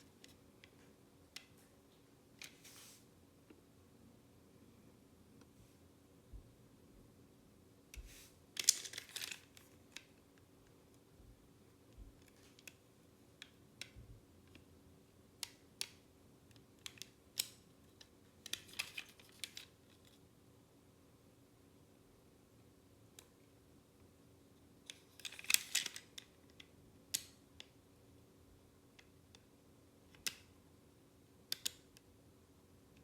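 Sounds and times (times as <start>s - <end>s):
plastic parts clicking: 8.6s - 10.2s, 24.9s - 27.7s.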